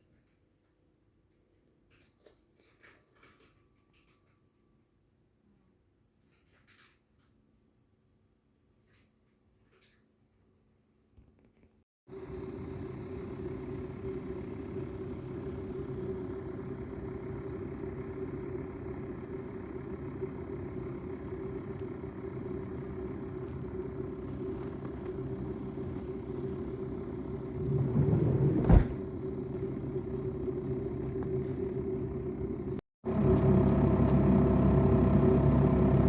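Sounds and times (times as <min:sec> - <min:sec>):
vehicle engine humming: 0:12.1 - 0:36.0.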